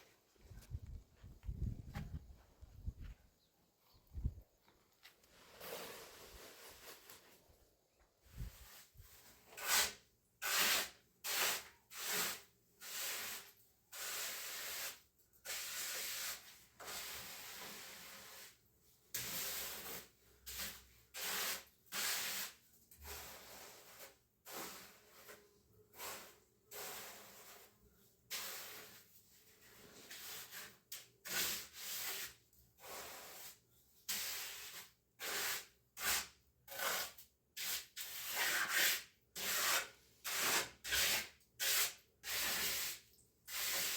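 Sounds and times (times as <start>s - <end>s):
hand tool scraping rough surface: 5.2s - 7.5s, 8.4s - 14.9s, 19.2s - 43.9s.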